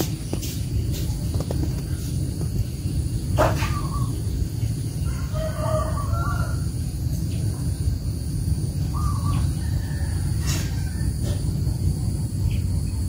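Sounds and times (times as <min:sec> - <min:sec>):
steady low rumble: 0:00.0 - 0:13.0
fowl calls: 0:03.4 - 0:04.2.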